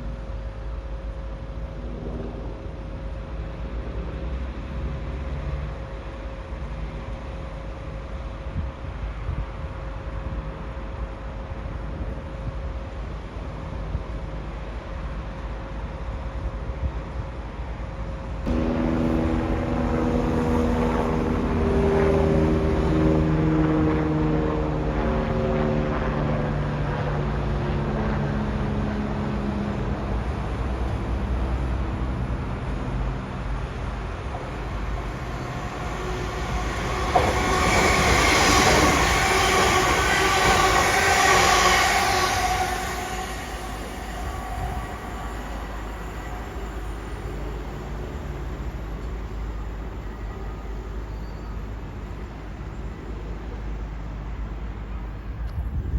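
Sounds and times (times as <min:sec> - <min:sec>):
low train rumble: 0:00.0 - 0:55.9
electric train motor whine: 0:18.5 - 0:24.0, 0:33.7 - 0:51.2.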